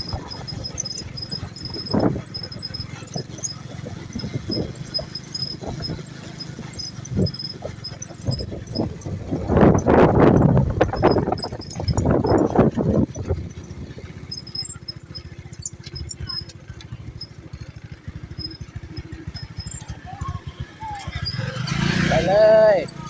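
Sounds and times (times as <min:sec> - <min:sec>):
small motorcycle engine running: 0:00.0 - 0:23.0.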